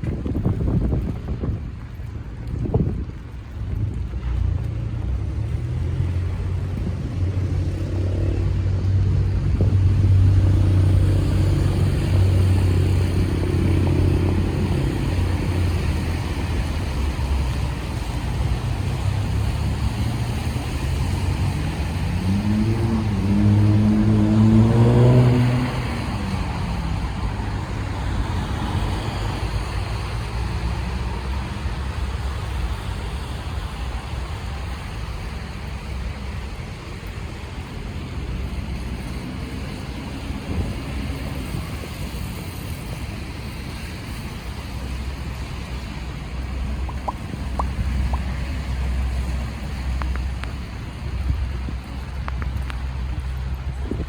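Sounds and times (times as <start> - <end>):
engine humming: 0.0 - 54.0
steady hiss of wet street: 0.0 - 54.0
vehicle accelerating: 3.8 - 35.1.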